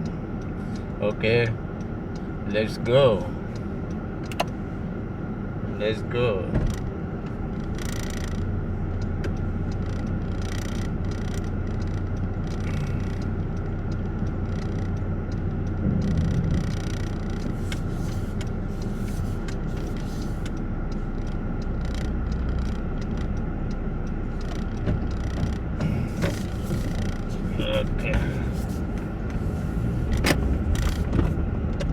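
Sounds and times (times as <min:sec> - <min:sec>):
car engine hum: 0:00.0 - 0:31.9
road noise: 0:00.0 - 0:31.9
faint clicks and knocks: 0:06.5 - 0:27.4.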